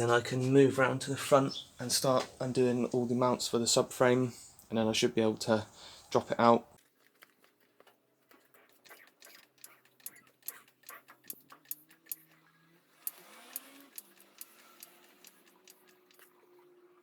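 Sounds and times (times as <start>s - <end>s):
metallic clicks of hand tools: 8.8s - 16.4s.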